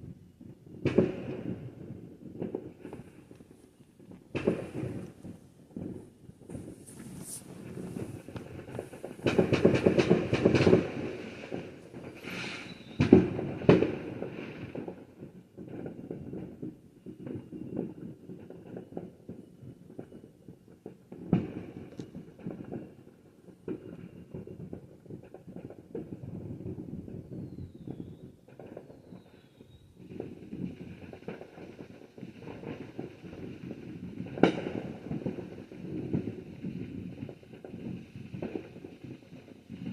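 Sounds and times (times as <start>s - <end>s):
fireworks bangs: 0.0s - 20.2s, 21.0s - 39.9s
fireworks crackling: 0.0s - 39.9s.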